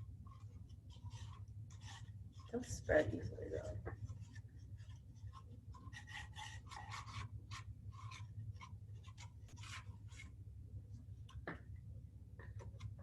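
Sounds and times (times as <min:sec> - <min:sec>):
low steady hum: 0:00.0 - 0:13.0
wooden stick scraping sticky spread: 0:00.2 - 0:10.4.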